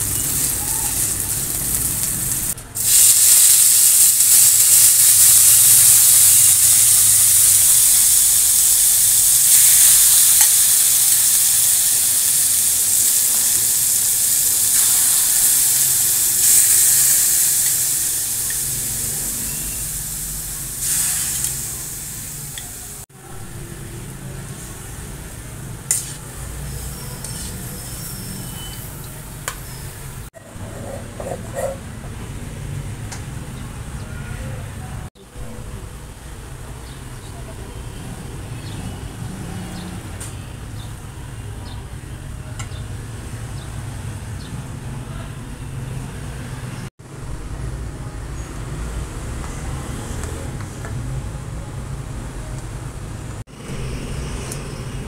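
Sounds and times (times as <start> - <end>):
meat sizzling in a pan: 0.0 - 23.1.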